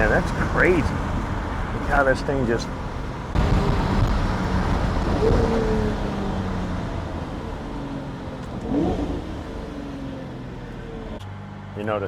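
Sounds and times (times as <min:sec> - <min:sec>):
car engine accelerating: 0:00.0 - 0:12.0
engine rev blip: 0:00.0 - 0:12.0.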